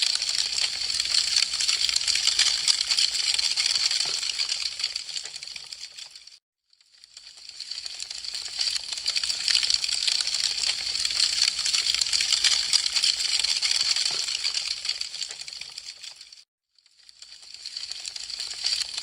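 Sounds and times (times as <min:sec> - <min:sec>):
wood fire crackling: 0:00.0 - 0:06.3, 0:07.4 - 0:16.3.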